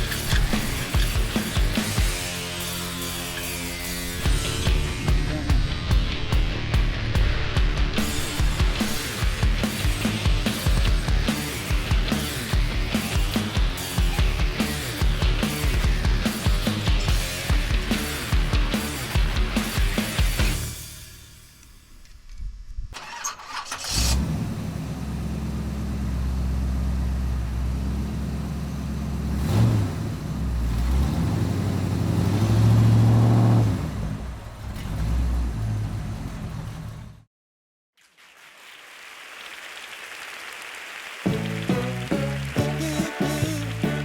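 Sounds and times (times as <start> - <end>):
diesel engine starting and revving: 0.0 - 6.3, 23.0 - 37.3.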